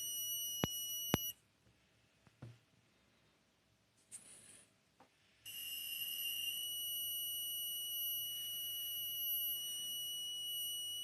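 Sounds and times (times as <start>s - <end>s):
monitor high-pitched whistle: 0.0s - 1.3s, 5.5s - 11.0s.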